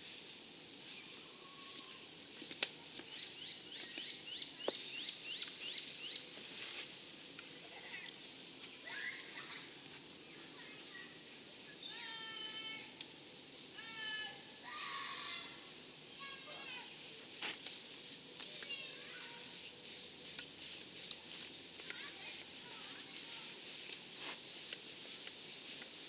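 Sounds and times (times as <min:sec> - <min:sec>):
bird chirping: 0:03.1 - 0:06.4.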